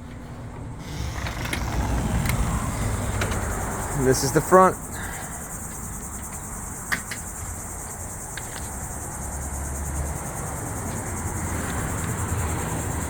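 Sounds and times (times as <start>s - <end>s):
insects singing drone: 0.7s - 13.0s
low rumble: 0.8s - 4.1s.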